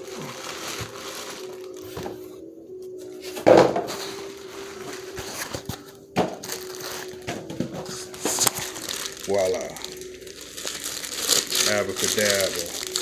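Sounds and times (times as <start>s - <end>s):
packing material crunch: 0.0s - 1.8s, 8.0s - 13.0s
faint steady tones: 0.0s - 13.0s
packaging clicks and knocks: 4.8s - 9.2s.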